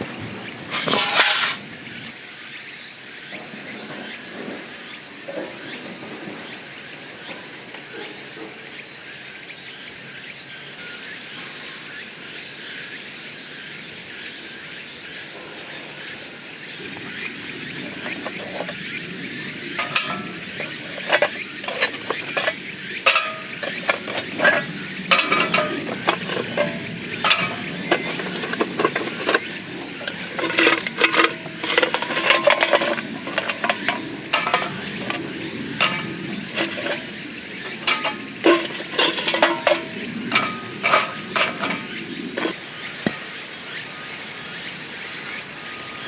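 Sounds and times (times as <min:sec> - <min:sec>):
metal cookware clinking and scraping: 0:00.7 - 0:01.7, 0:17.0 - 0:18.8, 0:19.5 - 0:43.2.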